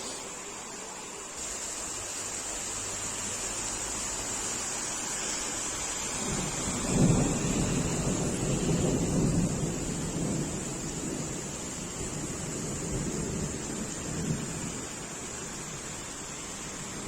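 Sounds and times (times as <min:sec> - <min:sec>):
heavy rain hiss: 0:00.0 - 0:17.0
thunder rumble: 0:05.8 - 0:17.0.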